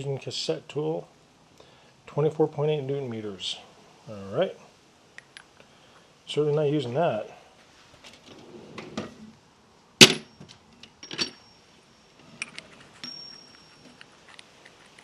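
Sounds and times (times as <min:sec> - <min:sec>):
metal tools clinking and clanking: 0:10.0 - 0:11.6.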